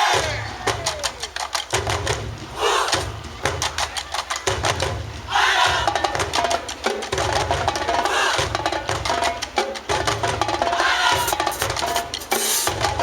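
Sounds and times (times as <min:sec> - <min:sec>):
group shout: 0:00.0 - 0:01.3, 0:02.6 - 0:03.0, 0:05.3 - 0:06.0, 0:10.8 - 0:11.6
drum line cadence: 0:00.0 - 0:13.0
horns playing short notes: 0:11.2 - 0:12.8.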